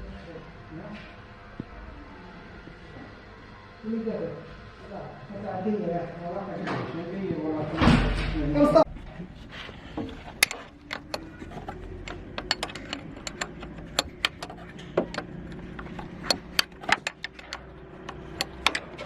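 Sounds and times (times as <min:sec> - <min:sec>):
steady low hum: 0:07.2 - 0:19.0
metallic clicks of tools handled: 0:10.3 - 0:19.0.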